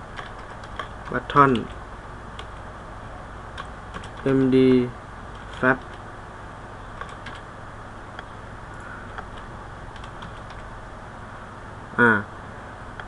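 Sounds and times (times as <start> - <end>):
steady background hiss: 0.0 - 13.0
computer keyboard keystrokes: 0.1 - 1.8, 2.4 - 2.6, 3.6 - 4.6, 5.4 - 6.0, 7.0 - 7.4, 8.7 - 10.7.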